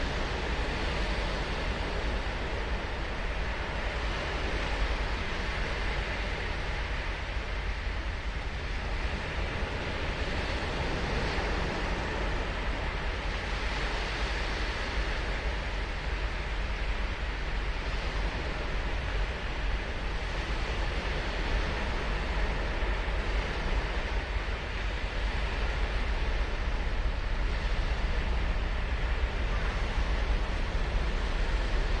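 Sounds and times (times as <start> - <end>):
ocean surf washing on beach: 0.0 - 32.0.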